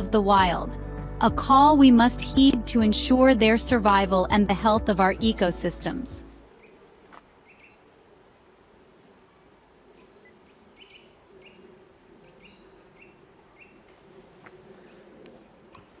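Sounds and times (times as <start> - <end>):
small bird chirping: 6.6 - 9.1.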